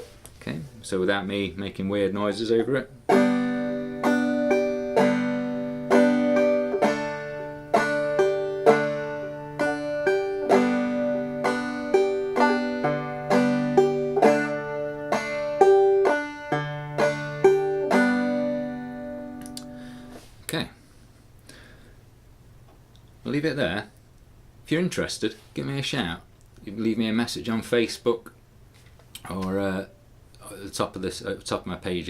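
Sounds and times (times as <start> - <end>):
banjo strumming: 2.2 - 20.3.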